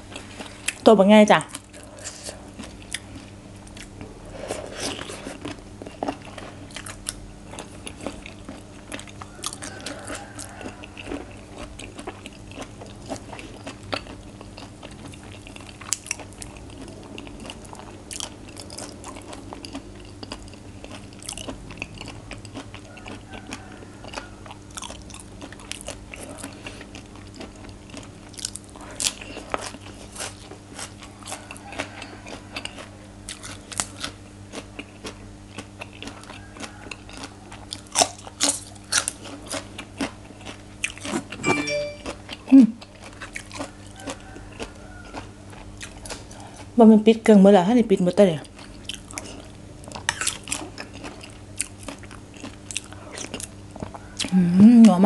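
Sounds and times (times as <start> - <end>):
person chewing crunchy food: 0.0 - 46.8, 48.4 - 55.0.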